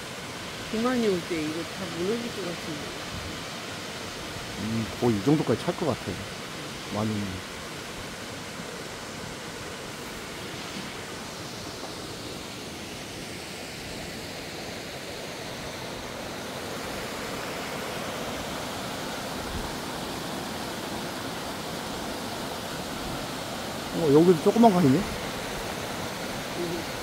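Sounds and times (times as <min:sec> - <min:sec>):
stream water rushing over rocks: 0:00.0 - 0:27.0.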